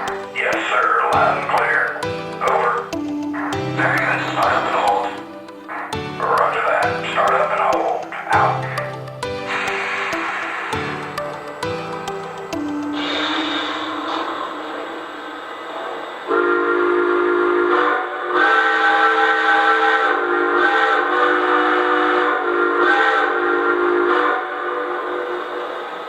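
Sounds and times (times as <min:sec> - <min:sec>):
steady hiss: 0:00.0 - 0:16.5
chime steam whistle blasts: 0:12.8 - 0:26.0.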